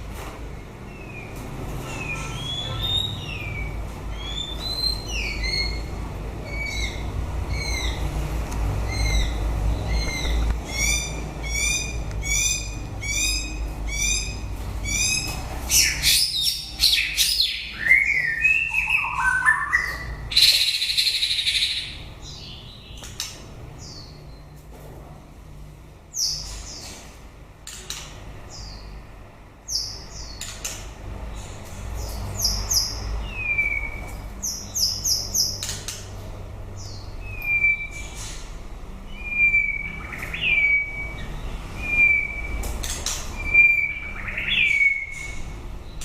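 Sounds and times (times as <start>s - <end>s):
bird singing whistled notes: 14.9s - 23.0s, 32.4s - 35.6s, 36.9s - 38.2s, 39.1s - 42.6s, 43.4s - 45.4s.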